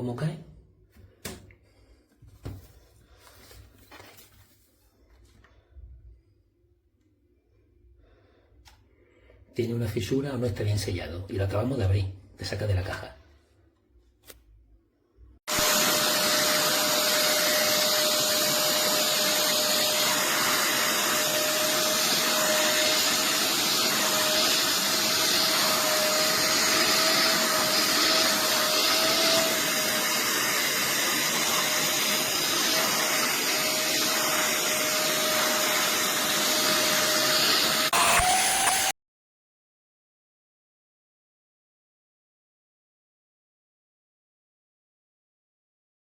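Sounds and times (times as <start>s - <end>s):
wet vacuum cleaner whining: 15.5s - 38.9s.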